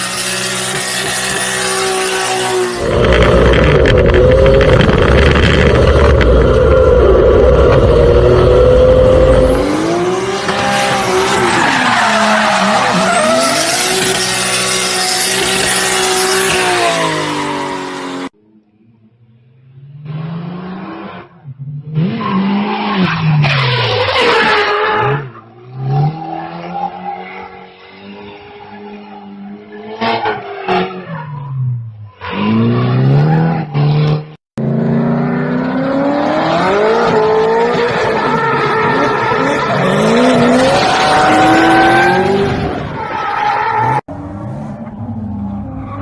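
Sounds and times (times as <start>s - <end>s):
tyre squeal and skidding: 0.0s - 7.2s, 10.4s - 18.3s, 22.0s - 33.8s, 37.0s - 44.0s
car engines revving: 32.3s - 46.0s.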